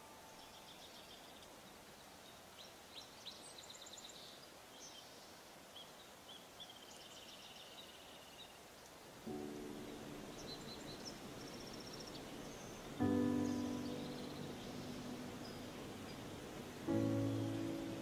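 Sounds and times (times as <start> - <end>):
faint woodland hiss: 0.0 - 18.0
songbirds chirping: 0.0 - 18.0
soft musical tones: 9.2 - 18.0.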